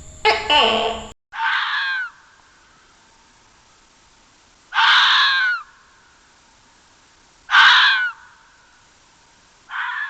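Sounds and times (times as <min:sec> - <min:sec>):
harsh drawn-out animal calls: 0:01.4 - 0:03.0, 0:04.7 - 0:06.2, 0:07.5 - 0:08.8, 0:09.7 - 0:10.0.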